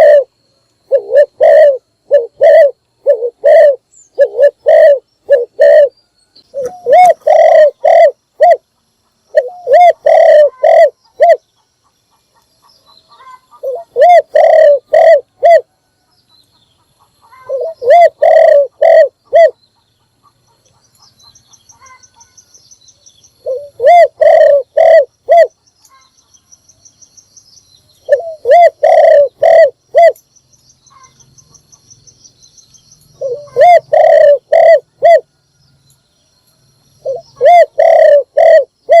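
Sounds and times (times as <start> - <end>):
dove cooing: 0.0 - 8.7, 9.3 - 11.4, 13.0 - 15.8, 17.2 - 19.6, 23.4 - 25.6, 28.0 - 30.2, 33.2 - 35.4, 37.0 - 39.0.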